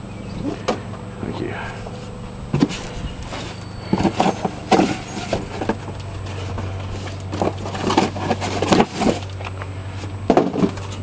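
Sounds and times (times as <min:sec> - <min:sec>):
steady low hum: 0:00.0 - 0:11.0
objects knocking and clattering: 0:03.4 - 0:09.5, 0:10.3 - 0:11.0.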